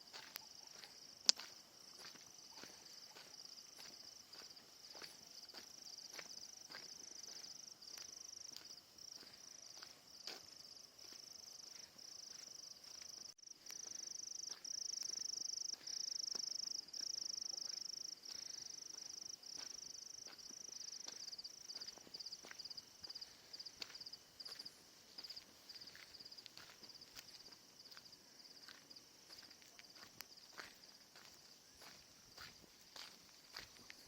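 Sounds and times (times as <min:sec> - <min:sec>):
crickets chirping: 0:00.0 - 0:34.0.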